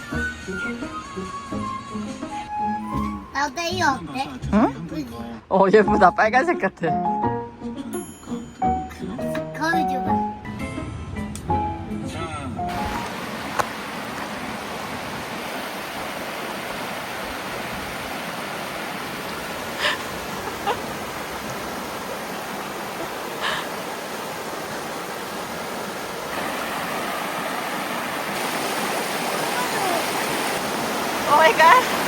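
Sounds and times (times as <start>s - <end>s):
stream rushing over rocks: 12.7s - 32.0s.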